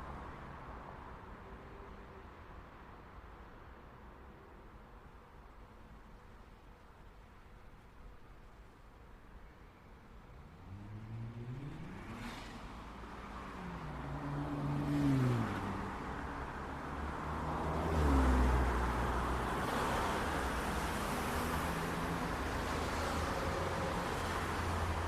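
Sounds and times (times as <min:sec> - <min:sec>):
traffic hum: 0:09.8 - 0:25.0.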